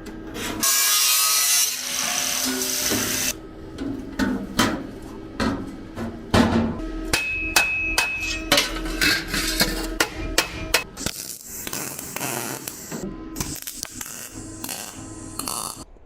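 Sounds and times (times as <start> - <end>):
hammer striking metal: 6.4 - 11.0.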